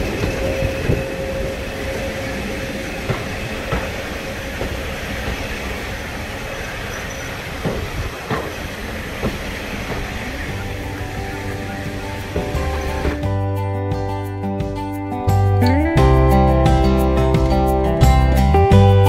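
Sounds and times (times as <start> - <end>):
train carriage rumbling on track: 0.0 - 14.9
wheel clicks over rail joints: 3.0 - 13.2.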